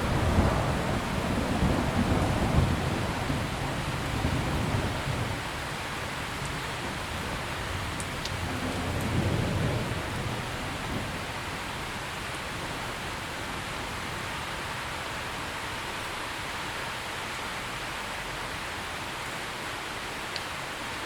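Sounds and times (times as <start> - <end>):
rolling thunder: 0.0 - 12.0
heavy rain: 0.0 - 21.0.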